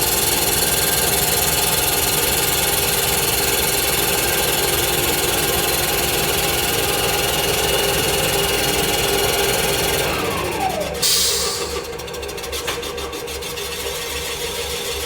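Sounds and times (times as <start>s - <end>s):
short hiss: 11.0s - 11.8s.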